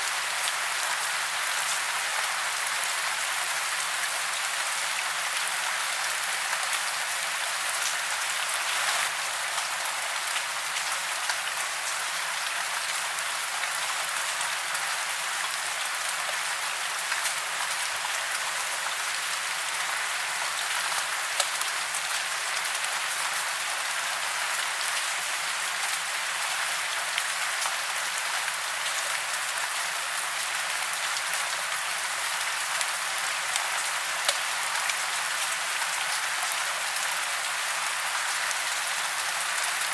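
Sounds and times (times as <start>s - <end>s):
steady rain hiss: 0.0s - 39.9s
raindrops ticking: 20.9s - 21.8s, 34.2s - 35.0s.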